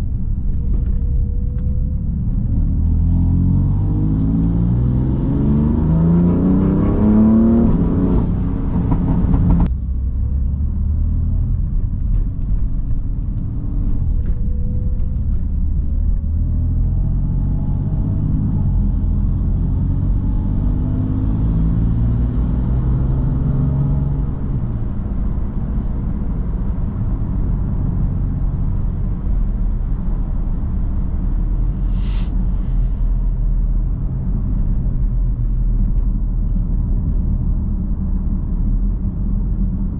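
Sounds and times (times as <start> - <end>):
car engine revving: 0.0 - 9.7
tyre and road noise: 0.0 - 39.9.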